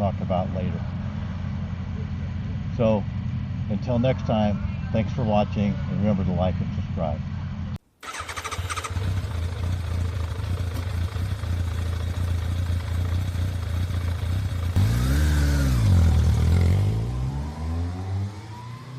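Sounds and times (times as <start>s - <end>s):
motorcycle engine running: 8.0s - 17.7s.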